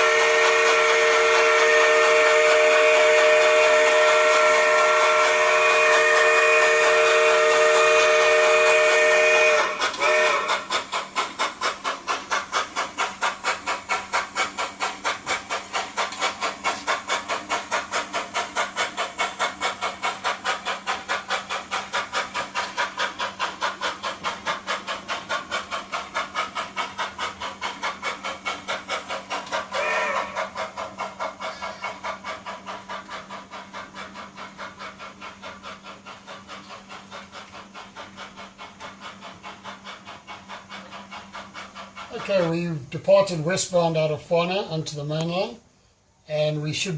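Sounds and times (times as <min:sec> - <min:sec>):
model steam whistle: 0:00.0 - 0:10.7, 0:29.7 - 0:30.5
model locomotive chuffing: 0:00.0 - 0:46.9.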